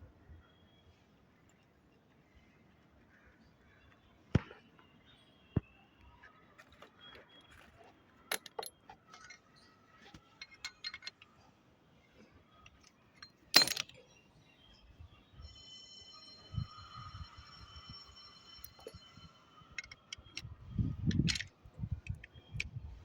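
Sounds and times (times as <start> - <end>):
metal tools and pipe clinking: 8.3 - 11.4, 12.7 - 14.0, 16.3 - 22.8.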